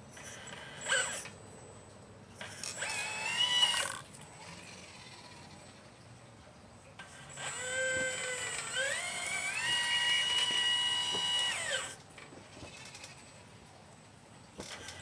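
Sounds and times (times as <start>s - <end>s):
small electric motor whining: 0.1s - 1.4s, 2.4s - 5.8s, 7.0s - 12.0s, 14.6s - 15.0s.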